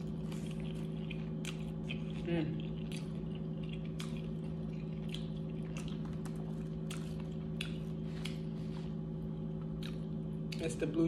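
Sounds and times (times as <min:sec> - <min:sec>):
wet chewing mouth sounds: 0:00.0 - 0:10.7
low steady hum: 0:00.0 - 0:11.0.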